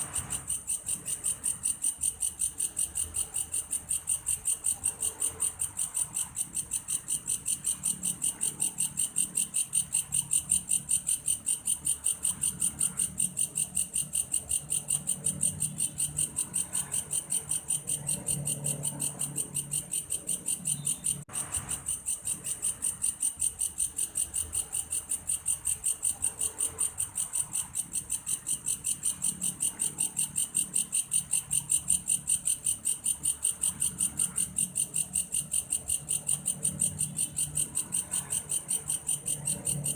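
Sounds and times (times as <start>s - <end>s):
grasshopper high-pitched trill: 0.0s - 39.9s.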